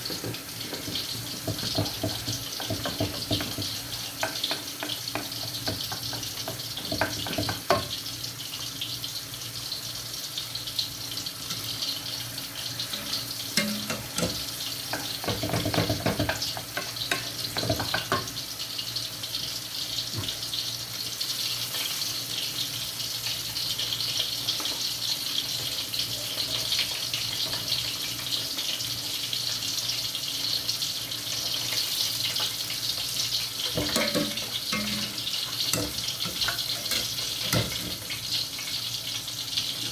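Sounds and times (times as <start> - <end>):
food sizzling in hot oil: 0.0 - 39.9
utensils clattering: 12.7 - 18.3, 33.6 - 38.3.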